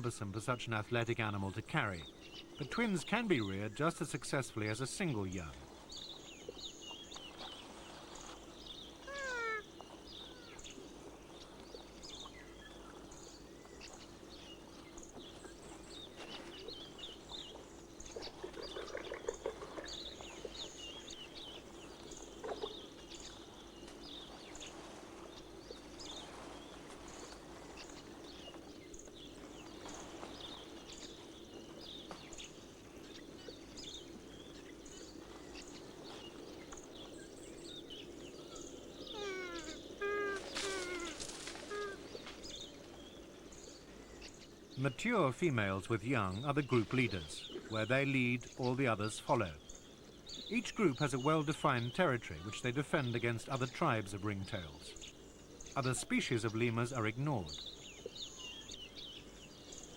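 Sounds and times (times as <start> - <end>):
rustles: 7.1 - 44.7
small high chirps: 9.0 - 10.6, 39.0 - 42.1
lemur meow-like call: 9.0 - 10.7, 39.0 - 42.2.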